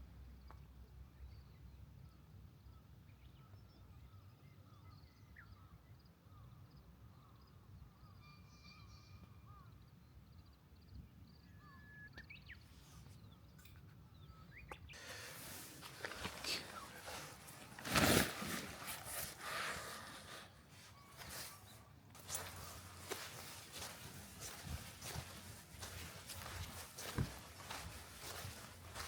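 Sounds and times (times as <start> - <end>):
distant bird chirps and whistles: 3.2 - 29.0
low rumble of wind: 20.8 - 29.0.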